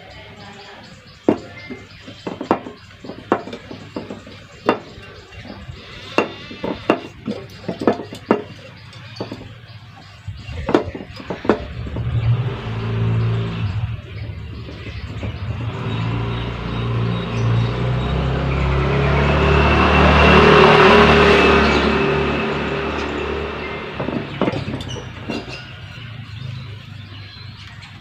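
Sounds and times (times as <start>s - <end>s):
metallic clinks and knocks: 1.2s - 12.4s, 23.9s - 26.3s.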